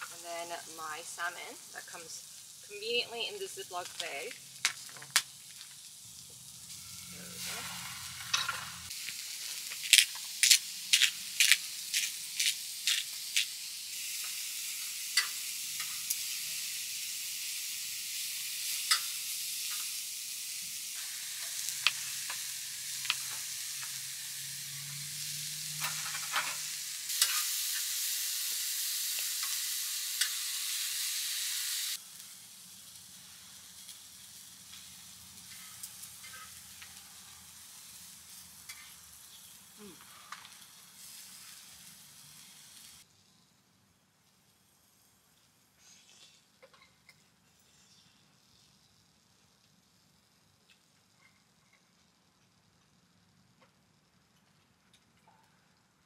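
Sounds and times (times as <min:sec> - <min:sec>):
food sizzling in a pan: 0:00.0 - 0:43.4.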